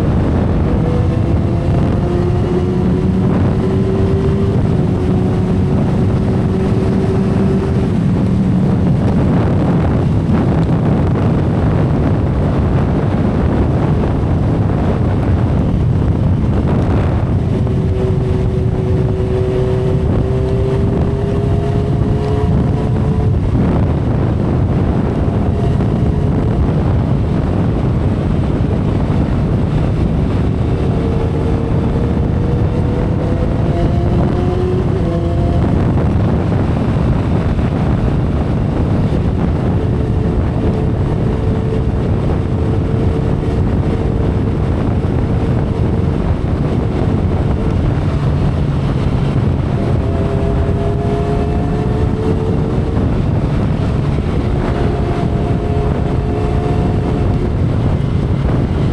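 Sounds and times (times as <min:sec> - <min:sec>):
motorcycle engine running: 0:00.0 - 0:58.9
wind rush on microphone: 0:00.0 - 0:58.9.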